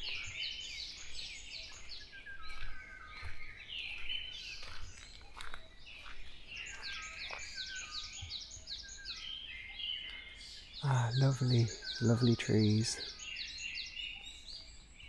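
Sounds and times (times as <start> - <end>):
sharp bird ticks: 0.0 - 8.8
songbirds singing and calling: 0.0 - 15.0.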